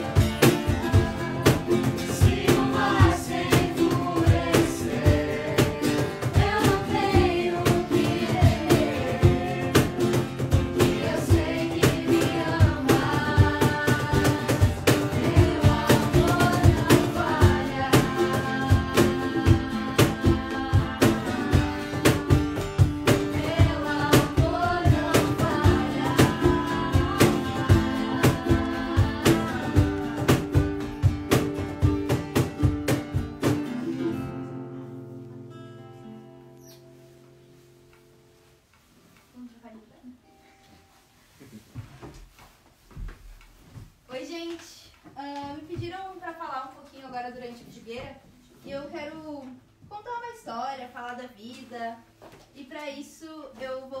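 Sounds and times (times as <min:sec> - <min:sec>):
strummed acoustic guitar: 0:00.0 - 0:38.4
person singing: 0:00.6 - 0:30.8.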